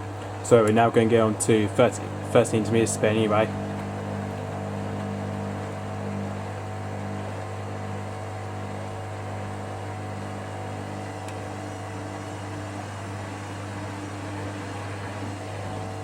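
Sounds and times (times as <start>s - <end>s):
washing machine motor humming: 0.0s - 16.0s.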